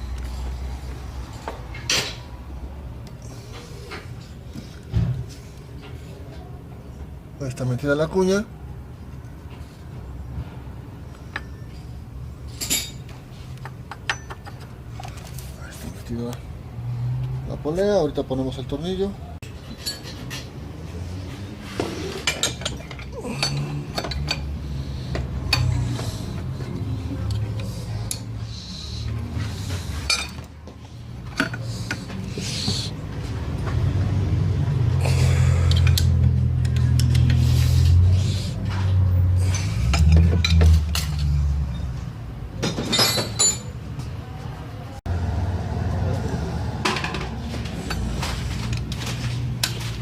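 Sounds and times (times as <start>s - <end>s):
metal tools clinking on engine parts: 11.1s - 16.0s, 19.5s - 20.6s, 22.1s - 26.0s, 29.9s - 30.6s, 31.2s - 32.2s, 35.6s - 37.4s, 39.4s - 41.9s, 42.6s - 43.9s
metal tools clinking: 12.5s - 13.1s, 19.6s - 20.5s, 22.2s - 24.6s, 30.0s - 30.6s, 42.6s - 43.8s.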